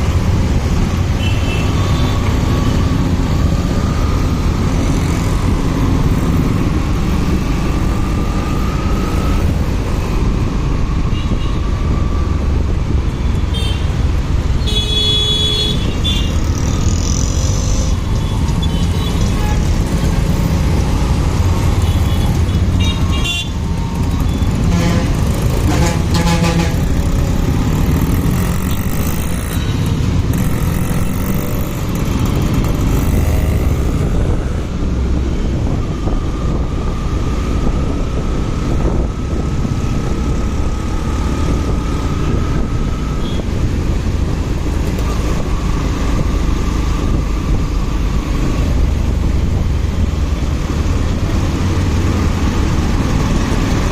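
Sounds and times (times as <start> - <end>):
motorcycle engine: 13.0 - 35.0
vehicle horns tooting: 14.6 - 16.4, 24.6 - 27.0.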